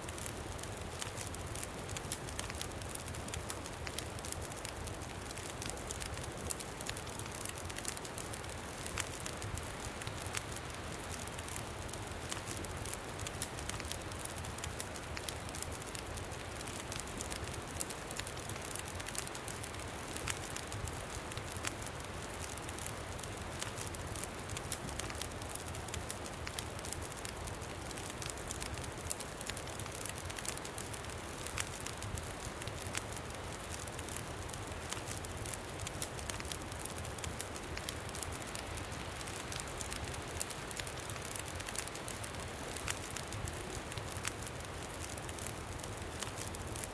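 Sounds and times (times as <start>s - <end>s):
campfire crackling and popping: 0.0s - 46.9s.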